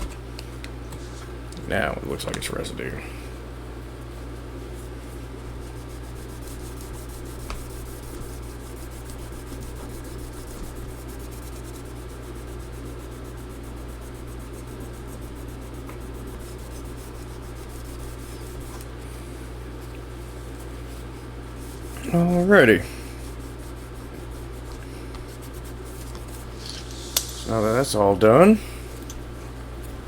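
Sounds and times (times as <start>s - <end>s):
steady low hum: 0.0s - 30.0s
rubbing and scraping on metal: 4.8s - 19.2s, 20.2s - 27.8s.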